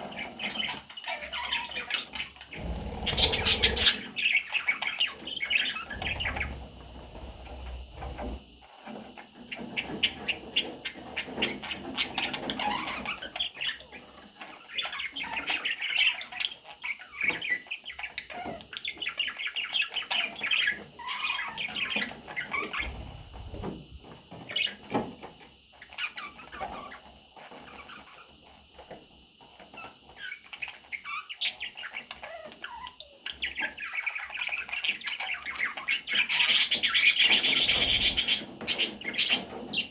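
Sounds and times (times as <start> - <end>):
budgerigars chirping: 0.1 - 7.4, 30.2 - 39.9.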